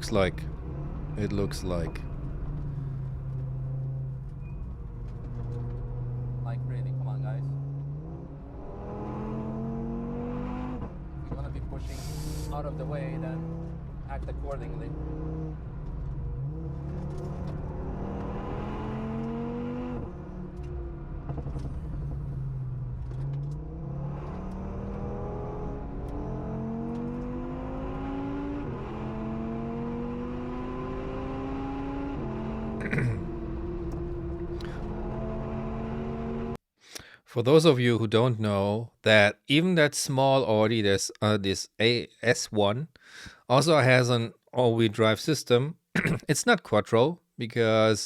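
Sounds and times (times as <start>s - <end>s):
car engine accelerating hard: 0.0s - 36.6s.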